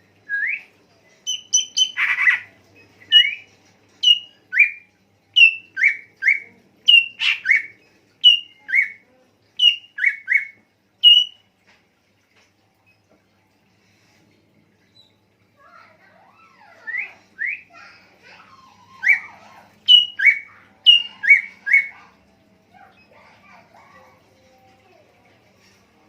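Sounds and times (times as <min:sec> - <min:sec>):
songbird whistled calls: 0:00.3 - 0:00.7, 0:01.3 - 0:02.4, 0:03.1 - 0:04.8, 0:05.4 - 0:09.0, 0:09.6 - 0:11.4, 0:19.9 - 0:21.9.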